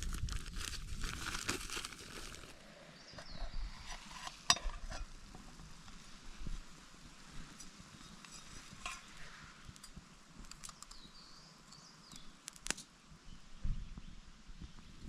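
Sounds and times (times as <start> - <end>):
fire crackling with pops: 3.8 - 13.0.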